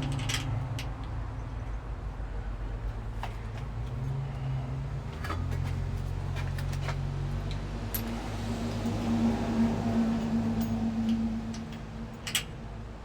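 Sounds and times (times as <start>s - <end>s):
low engine hum: 0.0s - 13.0s
metallic clicks of hand tools: 10.6s - 12.6s.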